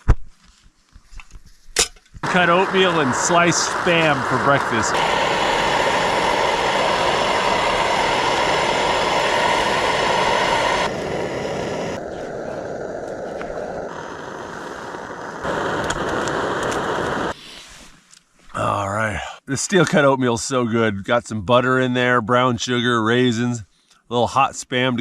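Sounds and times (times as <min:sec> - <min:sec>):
camp stove burner hissing: 0:02.2 - 0:17.8.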